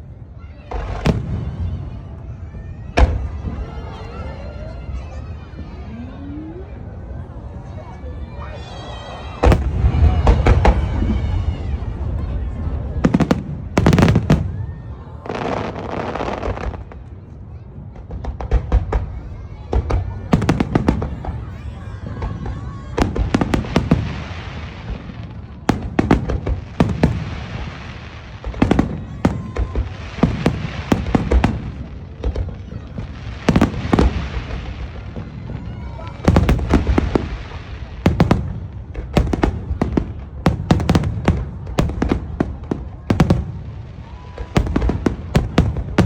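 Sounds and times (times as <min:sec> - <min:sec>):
hissing crackle of fireworks: 0:00.0 - 0:07.6, 0:08.3 - 0:46.0
fireworks banging: 0:09.3 - 0:17.2, 0:17.8 - 0:46.0.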